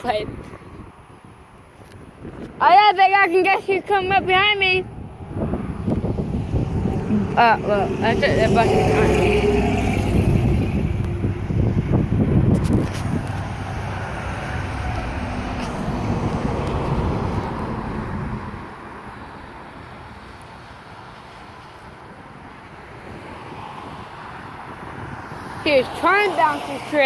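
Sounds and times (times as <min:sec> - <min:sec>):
road noise: 0:00.0 - 0:27.0
truck diesel rumble: 0:04.2 - 0:18.8.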